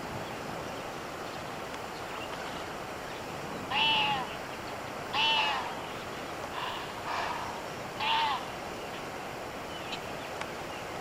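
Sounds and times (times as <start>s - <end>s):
steady background hiss: 0.0s - 11.0s
animal calls: 3.7s - 4.4s, 5.1s - 5.8s, 6.5s - 8.5s.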